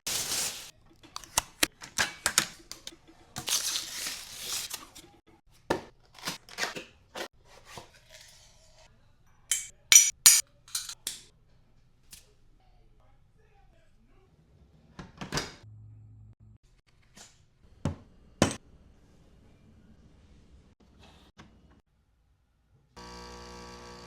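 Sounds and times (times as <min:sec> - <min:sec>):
packaging rustling: 0:00.0 - 0:01.4, 0:03.4 - 0:05.0
hard parts clinking: 0:09.5 - 0:11.2.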